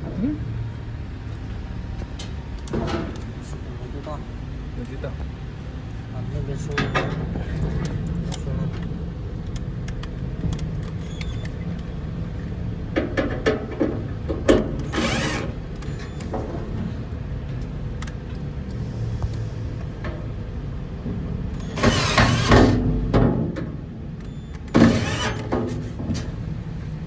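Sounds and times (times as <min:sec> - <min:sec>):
knocks and rattles of parts: 0:02.0 - 0:03.5, 0:12.9 - 0:17.0.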